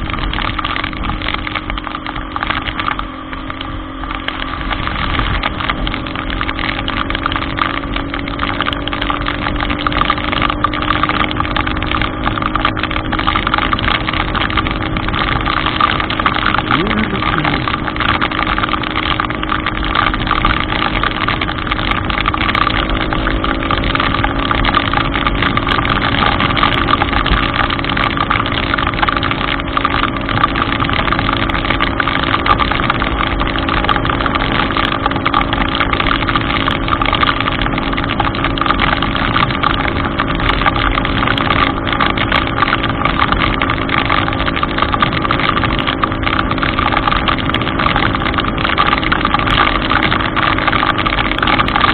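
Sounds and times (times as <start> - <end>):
vehicle engine running: 0.0 - 51.9
heavy rain hissing: 14.2 - 19.7.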